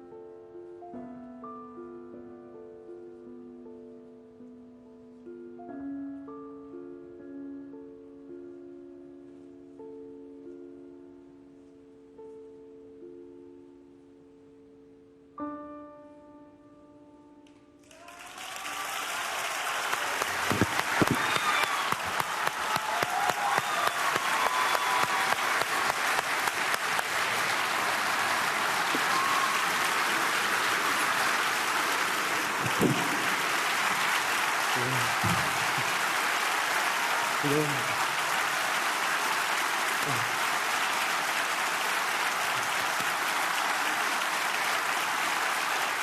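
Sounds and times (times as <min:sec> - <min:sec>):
audience applause with cheering: 0:17.8 - 0:46.0.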